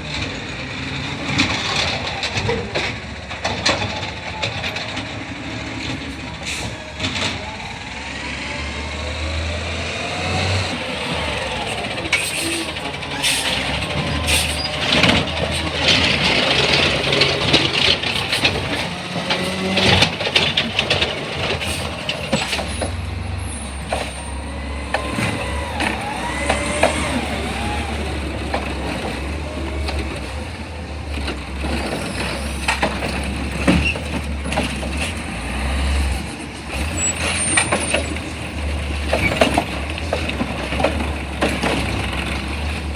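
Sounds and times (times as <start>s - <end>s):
garbage truck engine running: 0.0s - 42.9s
metal clanks and bangs: 10.7s - 42.9s
squeals: 10.8s - 17.0s, 36.8s - 39.7s.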